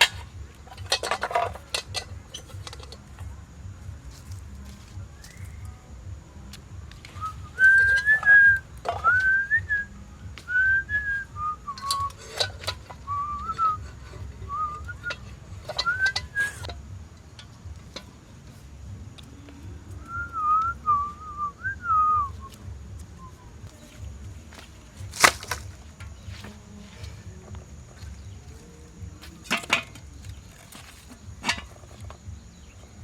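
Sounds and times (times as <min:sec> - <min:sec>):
person whistling a tune: 0:05.0 - 0:05.8, 0:07.1 - 0:16.7, 0:19.8 - 0:23.9.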